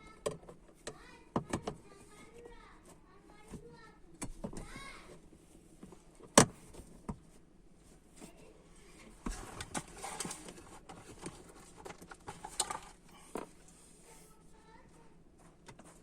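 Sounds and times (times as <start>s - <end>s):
parts clicking and rustling: 9.2s - 13.8s.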